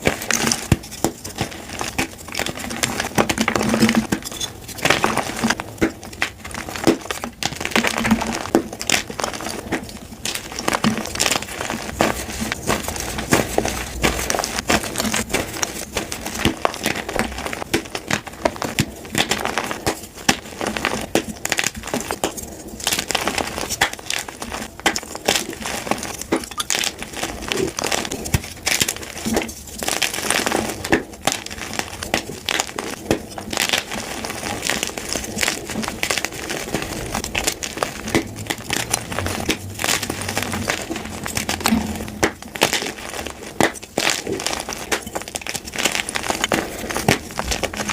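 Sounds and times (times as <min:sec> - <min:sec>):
chalk crunching and crackling: 0:00.0 - 0:47.9.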